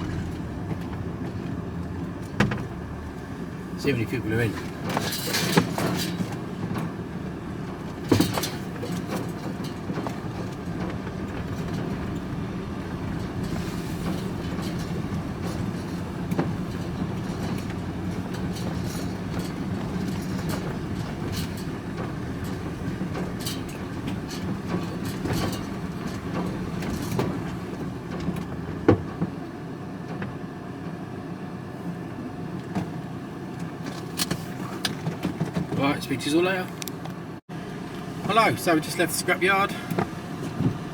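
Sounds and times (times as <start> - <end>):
van engine rumbling: 0.0 - 40.9
sharp knocks and rattles: 0.1 - 3.3, 4.5 - 29.4.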